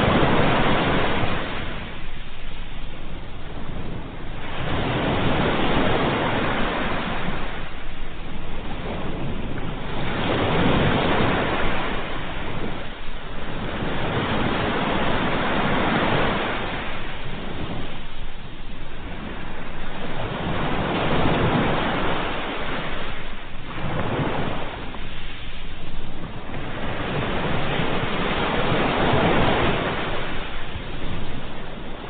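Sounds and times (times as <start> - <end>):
ocean waves breaking on shore: 0.0 - 32.0.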